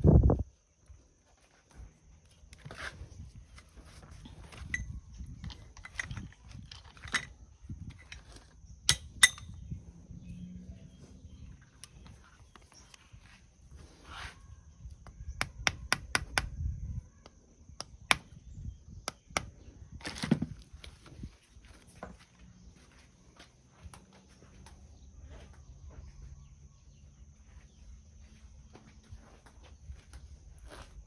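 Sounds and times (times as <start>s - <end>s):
metal tools clicking and knocking: 4.3s - 9.8s.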